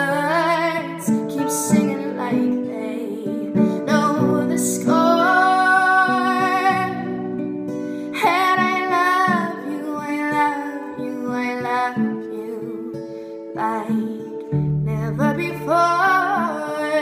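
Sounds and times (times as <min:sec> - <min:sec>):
acoustic guitar: 0:00.0 - 0:17.0
woman singing a slow ballad: 0:00.0 - 0:17.0.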